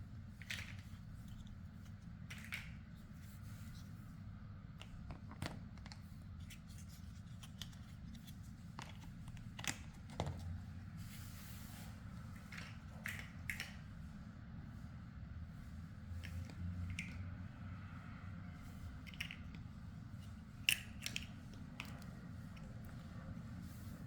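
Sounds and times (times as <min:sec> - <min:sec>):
plastic blocks clicking: 0:19.0 - 0:19.6, 0:20.6 - 0:22.0.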